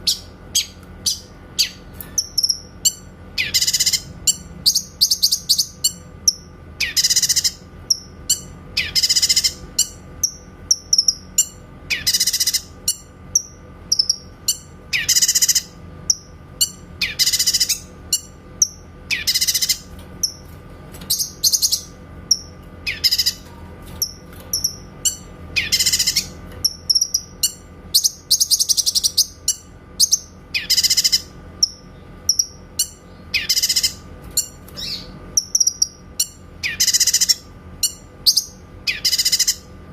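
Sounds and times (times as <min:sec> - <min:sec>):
bird singing high calls: 0:00.0 - 0:20.5, 0:21.1 - 0:39.7
faint low hum: 0:00.0 - 0:39.9.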